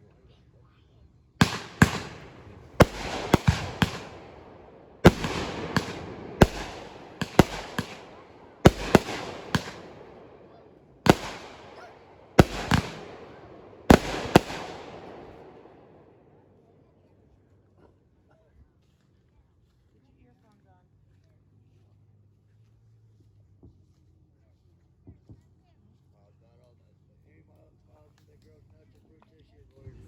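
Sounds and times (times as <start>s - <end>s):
fireworks banging and crackling: 1.4s - 16.0s.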